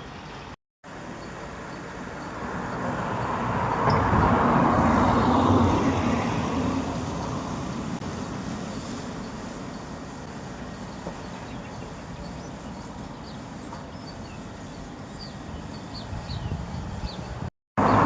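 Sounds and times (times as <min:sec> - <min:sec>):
vehicle passing by: 0:17.8 - 0:18.0.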